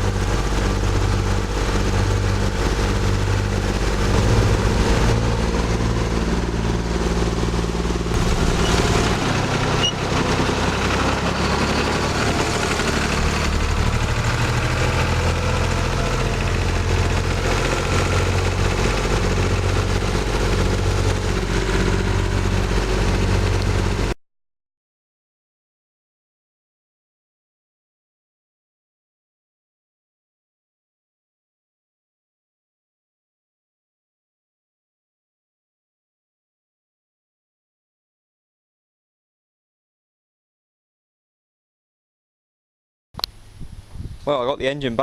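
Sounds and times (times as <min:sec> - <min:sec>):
tractor engine running: 0:00.0 - 0:24.2.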